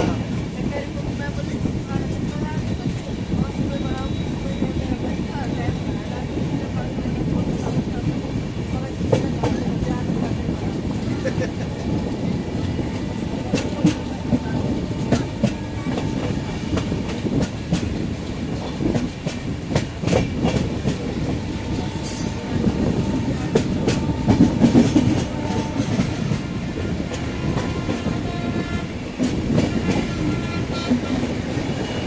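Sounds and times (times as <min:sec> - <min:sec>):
train rumbling on track: 0:00.0 - 0:32.0
high squeak: 0:22.1 - 0:22.6.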